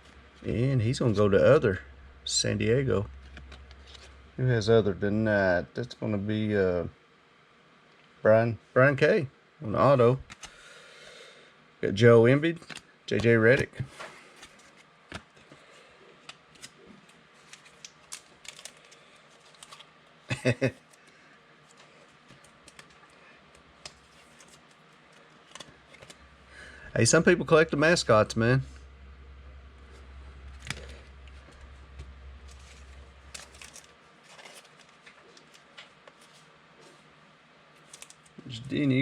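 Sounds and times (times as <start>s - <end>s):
low hum: 0.0s - 8.9s, 21.7s - 39.0s
cards clicking and sliding: 10.2s - 10.6s, 23.8s - 26.2s
trading cards handled: 10.2s - 10.6s, 12.6s - 19.9s, 20.9s - 26.2s, 29.9s - 37.1s, 37.8s - 38.5s.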